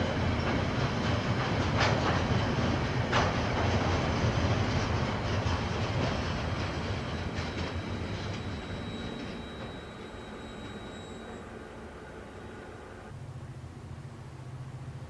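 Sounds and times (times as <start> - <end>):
train wheels clacking over rail joints: 0.0 - 12.6
faint high whine: 7.4 - 13.2.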